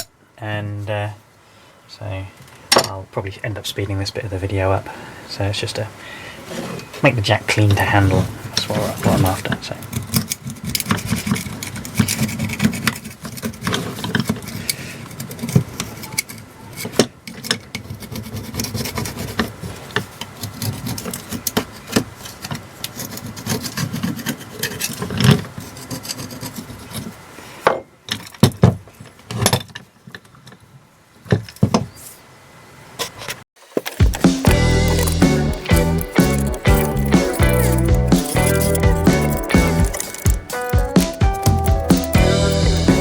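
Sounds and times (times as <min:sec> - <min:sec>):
scraper scraping metal: 0:08.0 - 0:27.2, 0:34.0 - 0:43.0.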